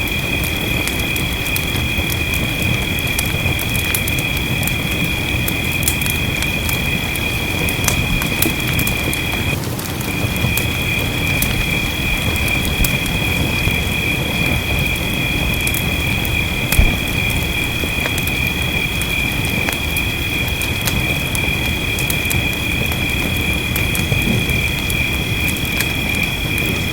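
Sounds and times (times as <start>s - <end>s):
rain hissing: 0.0s - 26.9s
wood fire crackling: 0.0s - 26.9s
low thump: 16.8s - 17.4s.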